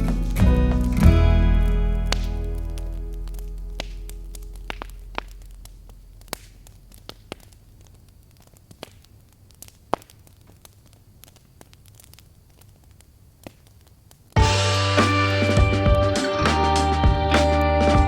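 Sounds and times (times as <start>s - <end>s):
song playing: 0.0s - 4.4s, 14.4s - 18.0s
fireplace crackling and popping: 0.0s - 18.0s.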